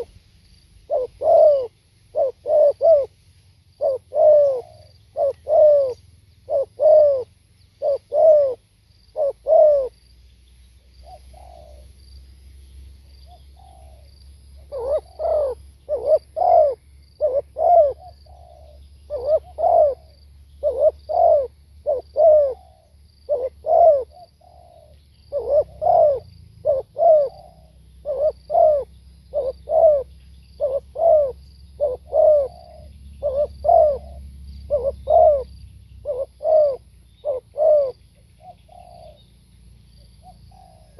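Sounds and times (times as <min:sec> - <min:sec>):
dove cooing: 0:00.0 - 0:00.2, 0:00.8 - 0:03.2, 0:03.8 - 0:10.1, 0:11.0 - 0:12.0, 0:13.0 - 0:39.3, 0:40.0 - 0:40.9.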